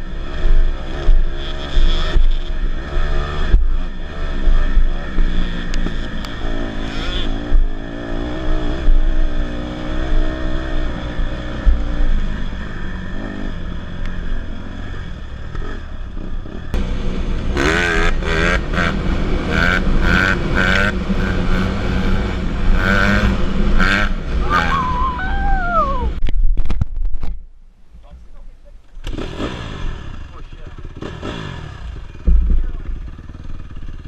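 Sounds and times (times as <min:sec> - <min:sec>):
dirt bike engine revving: 0:00.0 - 0:26.2, 0:28.8 - 0:34.0
uneven stuttering sounds: 0:24.4 - 0:26.2.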